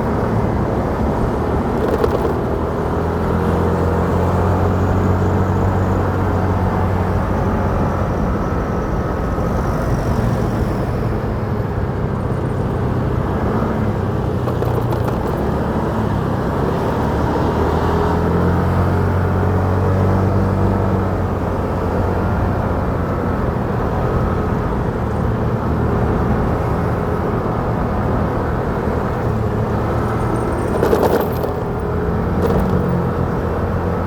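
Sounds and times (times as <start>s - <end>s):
motorcycle engine running: 0.0s - 4.9s, 14.2s - 17.3s, 29.4s - 34.0s
road and wind noise: 0.0s - 34.0s.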